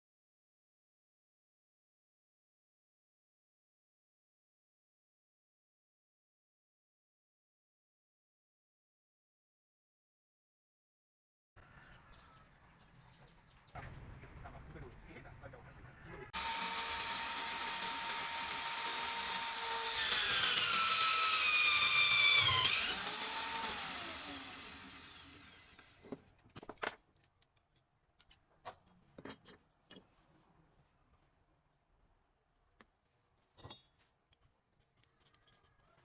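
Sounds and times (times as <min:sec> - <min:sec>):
power tool whining: 0:16.3 - 0:26.1.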